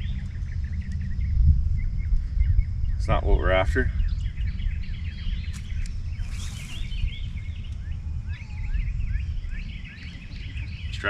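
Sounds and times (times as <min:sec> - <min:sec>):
birds chirping: 0:00.0 - 0:11.0
low rumble: 0:00.0 - 0:11.0.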